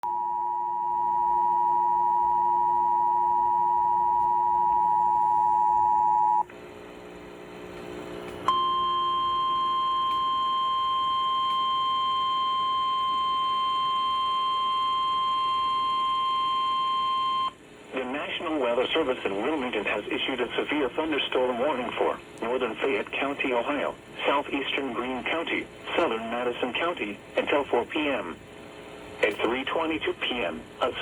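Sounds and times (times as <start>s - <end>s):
steady warning alarm tone: 0.0s - 6.4s, 8.5s - 17.6s
faint hum: 0.0s - 31.0s.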